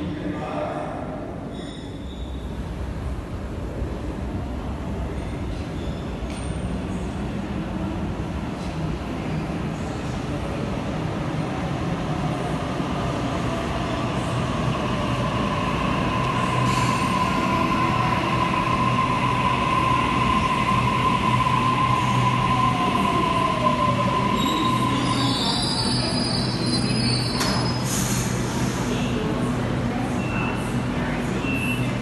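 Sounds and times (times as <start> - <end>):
high wheel squeal: 24.3 - 28.0.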